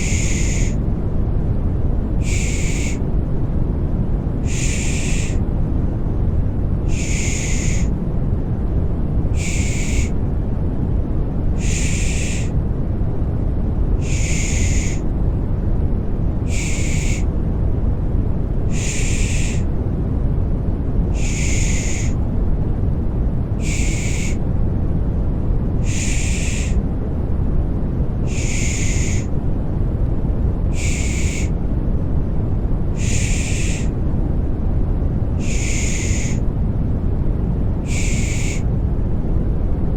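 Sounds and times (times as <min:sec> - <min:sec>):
shushing hiss: 0:00.0 - 0:00.8, 0:02.2 - 0:03.1, 0:04.4 - 0:05.4, 0:06.8 - 0:08.0, 0:09.3 - 0:10.2, 0:11.6 - 0:12.6, 0:14.0 - 0:15.0, 0:16.4 - 0:17.3, 0:18.7 - 0:19.7, 0:21.1 - 0:22.2, 0:23.6 - 0:24.4, 0:25.8 - 0:26.8, 0:28.2 - 0:29.3, 0:30.7 - 0:31.6, 0:33.0 - 0:34.0, 0:35.4 - 0:36.4, 0:37.8 - 0:38.7
deep white noise: 0:00.0 - 0:39.9.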